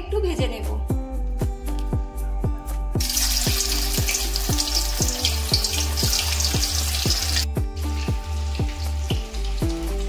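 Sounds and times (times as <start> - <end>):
background music with steady beat: 0.0 - 10.0
food sizzling in hot oil: 3.0 - 10.0.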